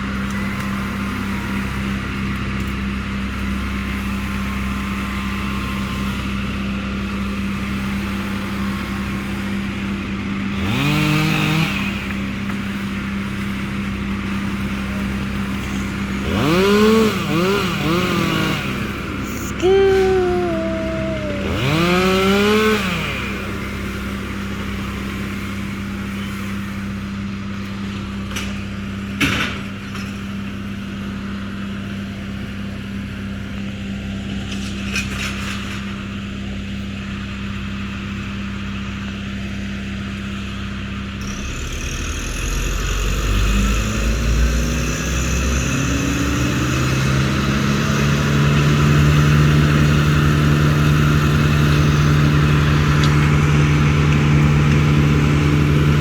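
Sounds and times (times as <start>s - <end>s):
engine running and revving: 0.0s - 56.0s.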